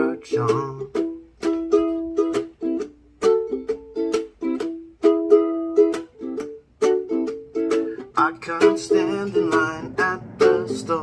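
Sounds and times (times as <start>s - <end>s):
acoustic string instrument strumming: 0.0s - 11.0s.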